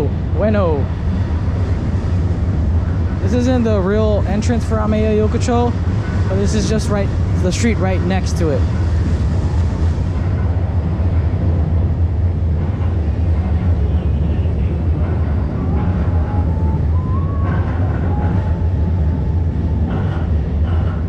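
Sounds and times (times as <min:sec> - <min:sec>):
low street rumble: 0:00.0 - 0:21.0.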